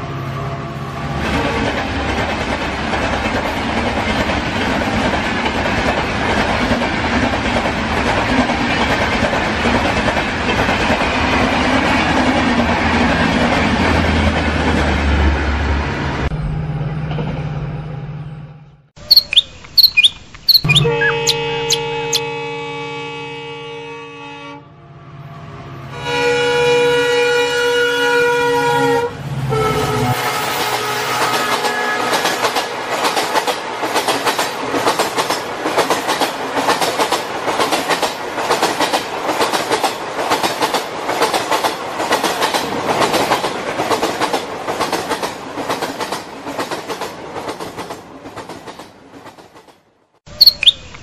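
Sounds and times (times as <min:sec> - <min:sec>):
multi-tone train horn: 0:00.0 - 0:02.0, 0:20.8 - 0:32.9
train rolling noise: 0:00.0 - 0:18.4, 0:19.0 - 0:22.4, 0:27.8 - 0:51.0
loud sharp clicks: 0:19.1 - 0:21.4.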